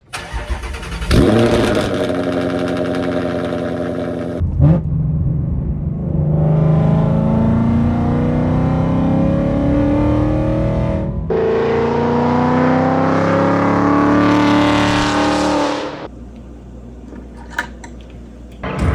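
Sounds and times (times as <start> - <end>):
car engine revving: 0.1 - 16.1.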